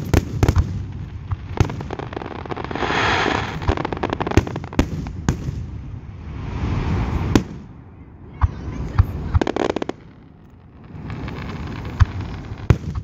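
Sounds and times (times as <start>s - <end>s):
fireworks crackling: 0.0s - 7.8s, 8.4s - 13.0s
fireworks bursting with sharp bangs: 0.0s - 13.0s
fireworks hissing: 1.4s - 5.0s, 10.8s - 13.0s.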